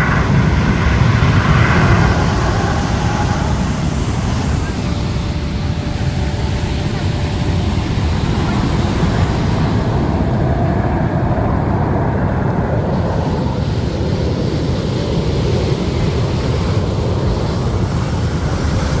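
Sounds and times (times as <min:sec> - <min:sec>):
deep rumble: 0:00.0 - 0:19.0
jets flying over: 0:00.0 - 0:19.0.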